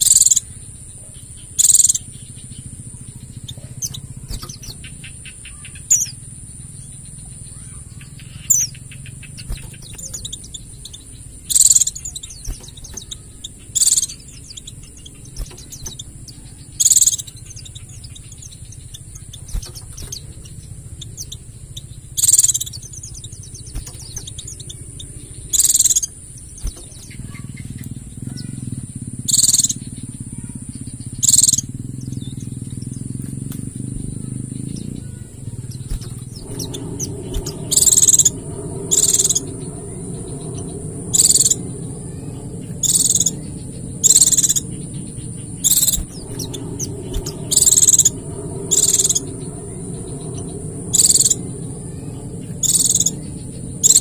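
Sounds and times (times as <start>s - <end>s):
bird twittering: 0.0s - 54.0s
low hum: 0.0s - 54.0s
sharp high-pitched bursts: 33.8s - 54.0s.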